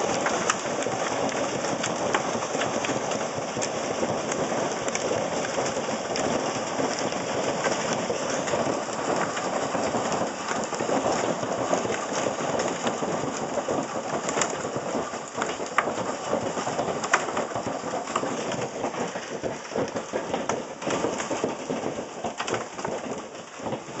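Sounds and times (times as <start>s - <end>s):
hail pelting down: 0.0s - 24.0s.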